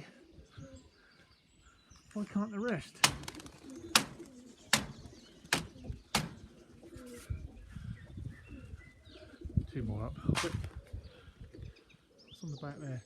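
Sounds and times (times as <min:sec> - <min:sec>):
pigeons cooing: 0:00.0 - 0:13.0
sharp knocks or claps: 0:03.0 - 0:06.4.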